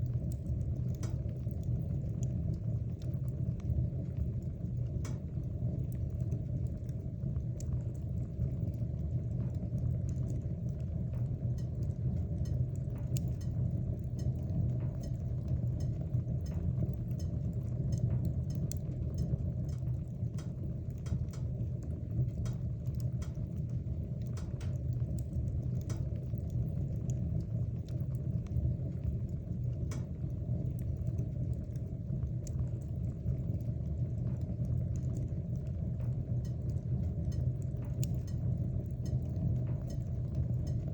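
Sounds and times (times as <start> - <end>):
fire crackling: 0.0 - 40.9
fire rumbling in fireplace: 0.0 - 40.9.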